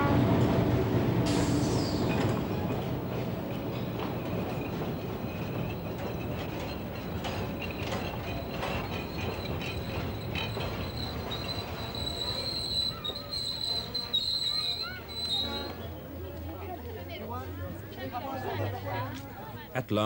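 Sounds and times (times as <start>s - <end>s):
train wheels clicking and rumbling: 0.0s - 19.3s
metallic wheel squeal: 3.7s - 15.8s.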